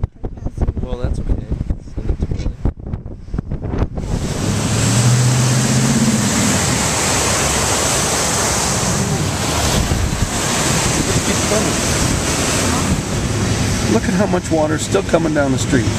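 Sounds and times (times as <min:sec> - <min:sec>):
wind on microphone: 0:00.0 - 0:14.0
heavy rain downpour: 0:04.1 - 0:15.9.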